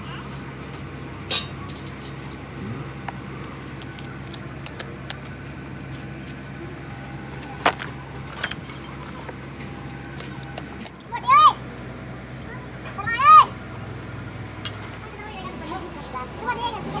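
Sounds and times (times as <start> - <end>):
steady low hum: 2.6 - 4.7
metal tools clinking: 3.6 - 5.2, 7.6 - 11.1.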